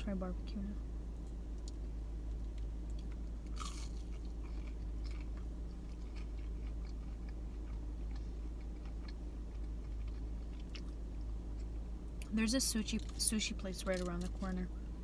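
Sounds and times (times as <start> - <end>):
steady low hum: 0.0 - 15.0
person biting and chewing: 2.9 - 11.0.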